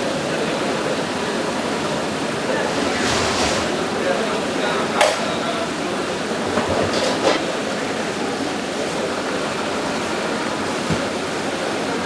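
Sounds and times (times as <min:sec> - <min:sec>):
moving train rumble: 0:02.1 - 0:05.2.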